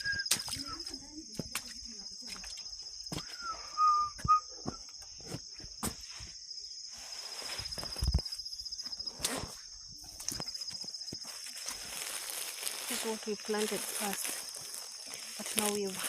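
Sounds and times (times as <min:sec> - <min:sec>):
whistled note: 0:00.0 - 0:00.8, 0:03.3 - 0:04.9
insects trilling: 0:00.0 - 0:16.0
footsteps through vegetation: 0:05.2 - 0:16.0.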